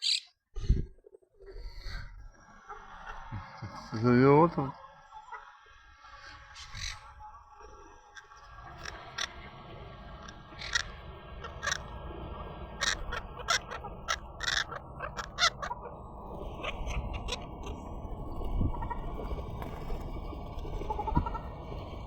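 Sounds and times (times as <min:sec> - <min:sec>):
parrots squawking: 0:00.0 - 0:00.3, 0:08.2 - 0:17.9.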